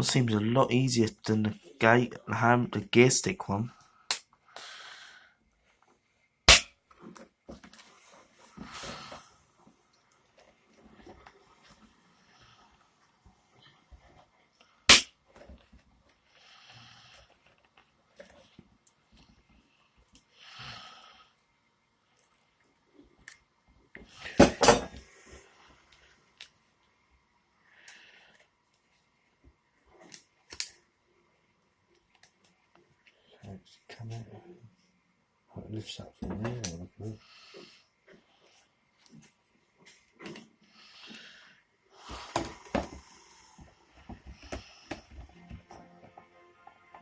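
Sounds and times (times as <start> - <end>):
soft breathy exhale: 40.7 - 43.7.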